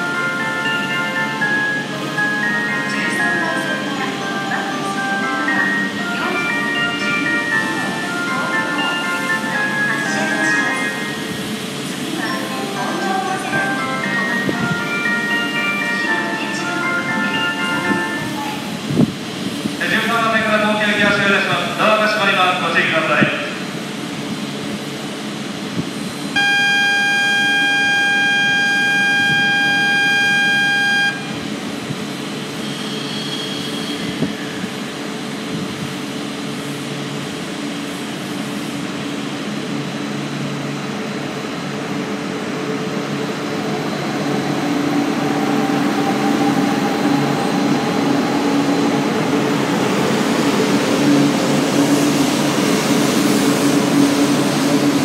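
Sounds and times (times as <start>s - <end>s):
train whine and rumble: 0.0s - 55.0s
loud electronic tone: 26.4s - 31.4s.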